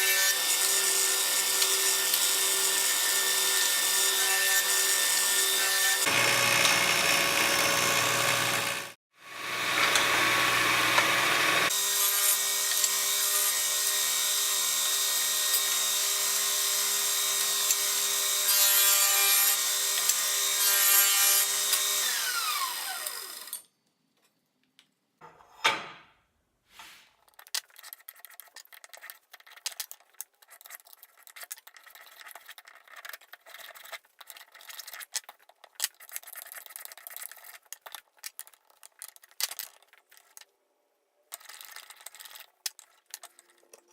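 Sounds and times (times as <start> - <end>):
electric power tool running: 6.0 - 23.6
scratching and rubbing: 26.7 - 40.5.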